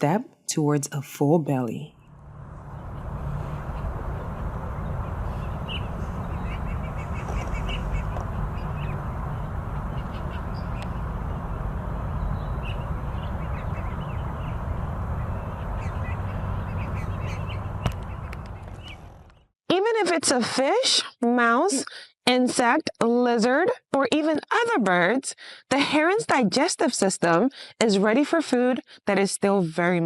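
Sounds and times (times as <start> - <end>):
steady low rush: 1.9 - 19.2
birds calling: 2.6 - 19.4.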